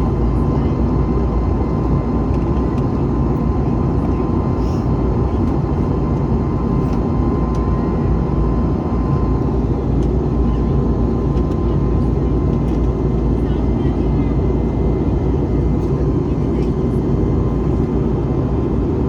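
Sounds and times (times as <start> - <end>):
airliner cabin engine and airflow rush: 0.0 - 19.0.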